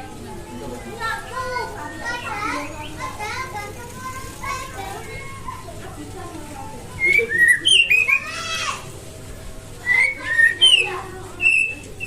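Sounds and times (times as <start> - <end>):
bird singing whistled notes: 7.0 - 8.3, 9.8 - 12.0.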